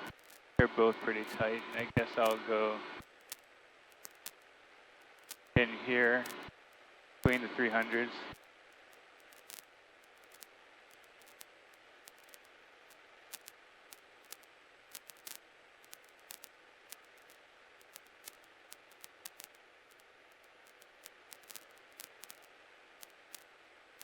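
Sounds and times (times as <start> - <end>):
faint intercom hiss: 0.0 - 3.0, 5.5 - 8.4
static crackle clicks: 0.0 - 24.0.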